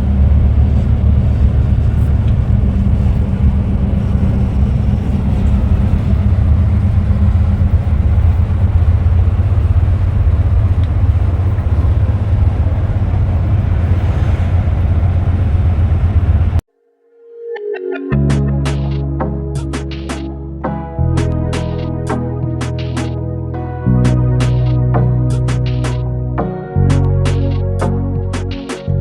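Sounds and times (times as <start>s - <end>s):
bus diesel engine drone: 0.0s - 16.6s, 18.1s - 29.0s
road noise: 0.0s - 16.6s.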